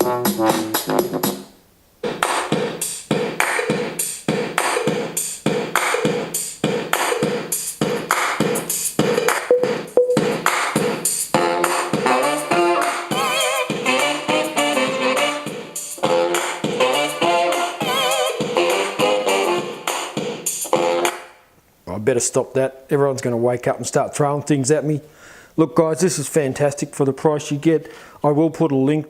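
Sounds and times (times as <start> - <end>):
music through a speaker: 0.0 - 21.4.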